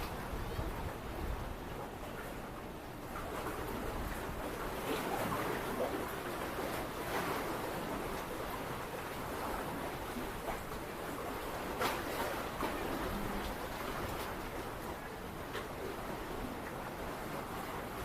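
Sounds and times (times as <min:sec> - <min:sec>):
wind noise: 0:00.0 - 0:02.0
sea waves washing on shore: 0:00.0 - 0:18.0.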